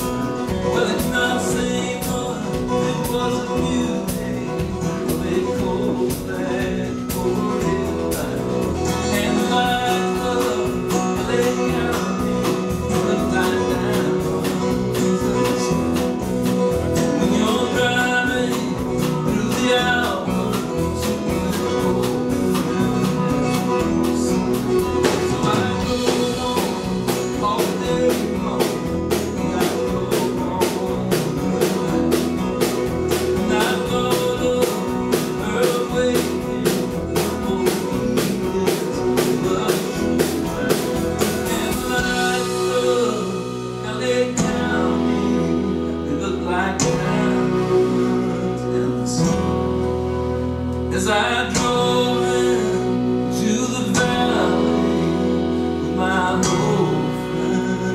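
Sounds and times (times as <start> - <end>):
live country band music: 0.0 - 57.9.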